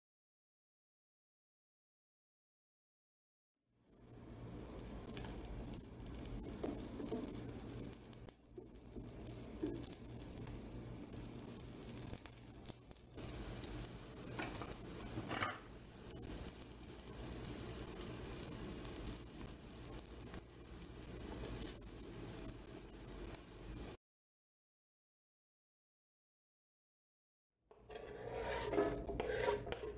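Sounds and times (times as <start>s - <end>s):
zucchini sizzling in oil: 3.8s - 24.0s, 27.8s - 29.9s.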